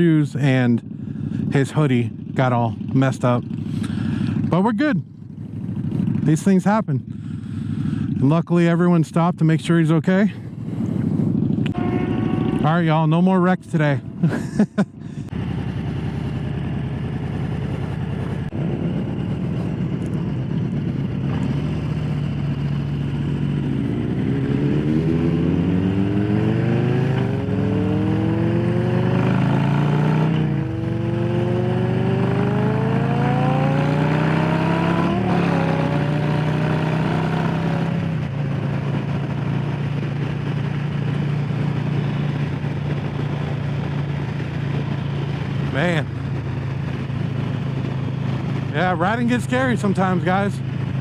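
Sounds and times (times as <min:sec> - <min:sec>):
motorcycle engine accelerating: 0:00.8 - 0:08.2, 0:09.9 - 0:51.0.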